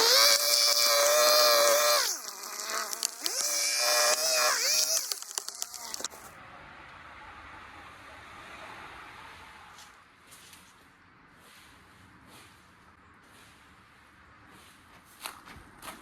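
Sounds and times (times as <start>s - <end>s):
hedge trimmer motor whine: 0.0s - 6.3s
sharp clicks: 2.0s - 6.3s.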